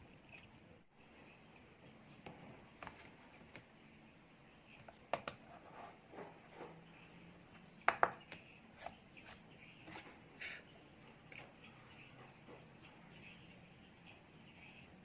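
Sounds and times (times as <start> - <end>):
sharp clicks and taps: 4.8 - 5.4, 7.8 - 9.0.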